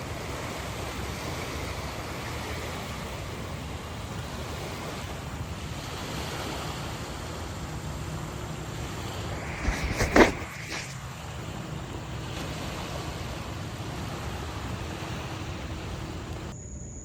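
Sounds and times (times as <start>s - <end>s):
river water lapping: 0.0s - 16.5s
wind buffeting microphone: 7.6s - 12.2s
loud noisy strokes: 8.8s - 11.2s.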